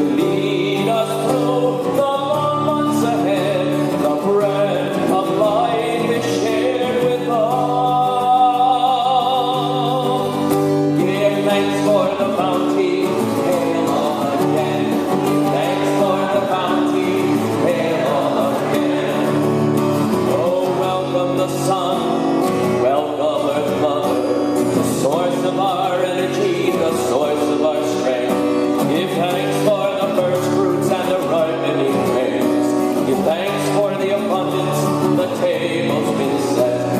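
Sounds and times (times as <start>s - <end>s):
man singing folk song: 0.0s - 36.9s.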